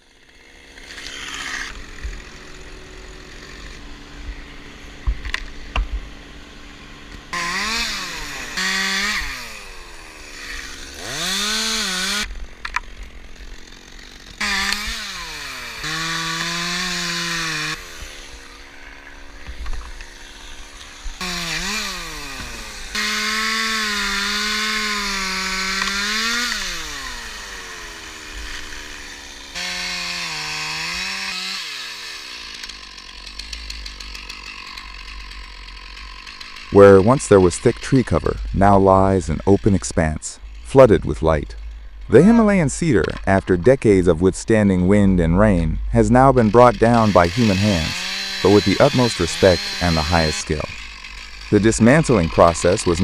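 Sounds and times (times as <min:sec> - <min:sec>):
chainsaw engine revving: 0:00.0 - 0:53.0.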